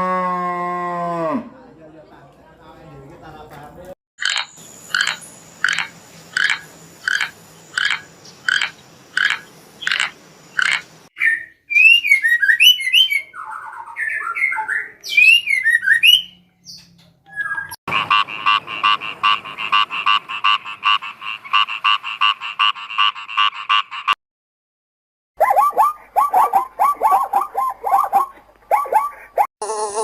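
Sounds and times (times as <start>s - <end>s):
croaks: 4.2s - 10.9s, 17.9s - 24.2s
fast pulsed animal calls: 4.2s - 10.9s, 17.9s - 23.8s, 25.4s - 29.5s
bird chirps and squawks: 4.2s - 20.1s, 25.4s - 29.4s.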